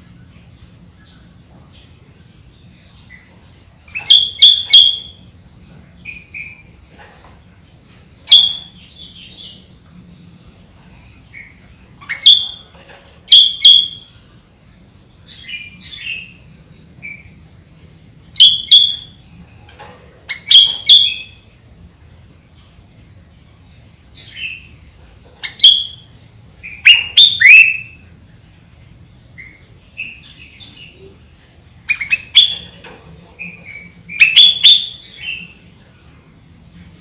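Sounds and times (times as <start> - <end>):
bird warbling: 31.9 - 35.6.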